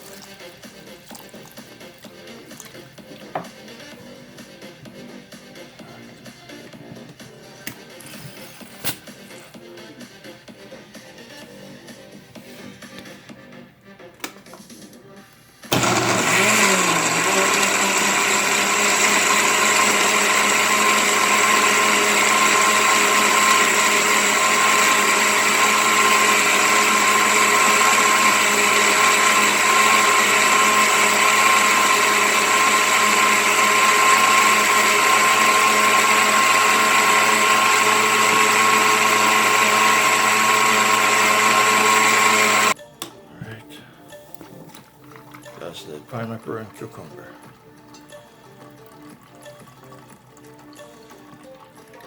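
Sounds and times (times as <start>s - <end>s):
electric blender motor: 15.6s - 42.8s.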